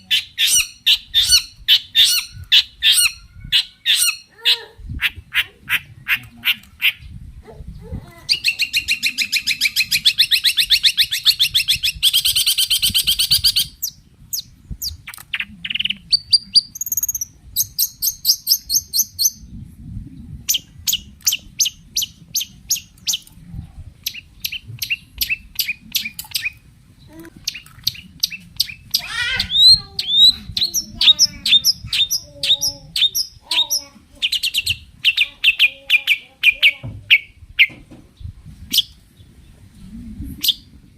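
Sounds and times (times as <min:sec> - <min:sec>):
bird singing harsh notes and trills: 0:00.0 - 0:07.3, 0:08.3 - 0:19.6, 0:24.0 - 0:26.7, 0:27.4 - 0:37.8.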